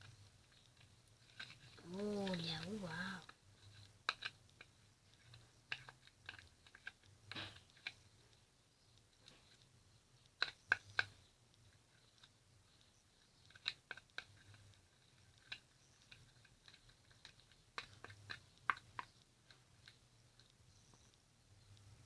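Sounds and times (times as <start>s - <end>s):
slime sticky squelches: 1.3s - 3.3s.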